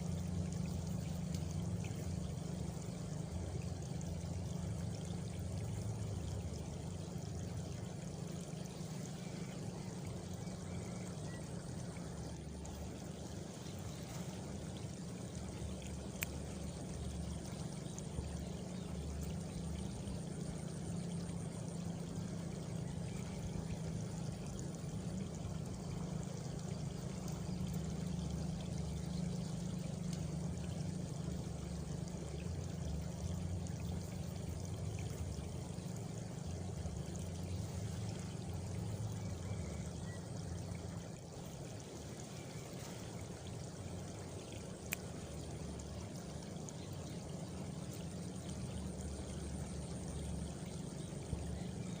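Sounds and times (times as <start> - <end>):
faint high insect trill: 0.0 - 52.0
flowing water rushing: 0.0 - 52.0.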